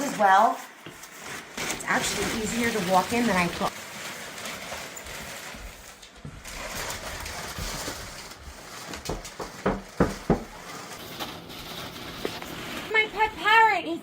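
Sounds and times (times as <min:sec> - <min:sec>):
sharp knocks or rustles: 0:07.1 - 0:12.6.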